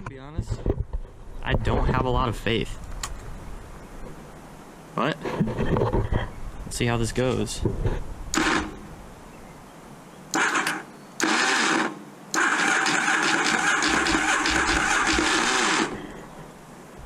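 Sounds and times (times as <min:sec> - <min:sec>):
motorcycle electric starter cranking: 0:08.3 - 0:08.8, 0:10.4 - 0:16.0.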